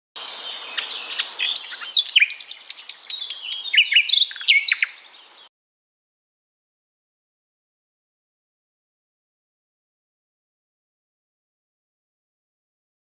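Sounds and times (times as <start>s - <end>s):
birds chirping: 0.2s - 5.5s.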